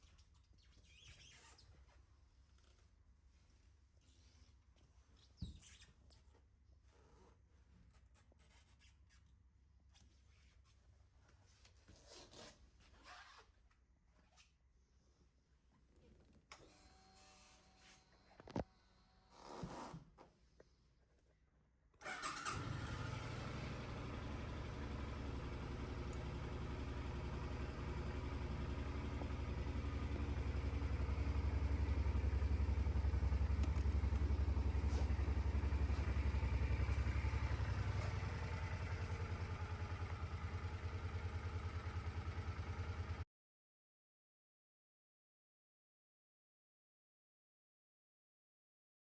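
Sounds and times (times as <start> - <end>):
motorcycle engine idling: 22.1 - 43.2.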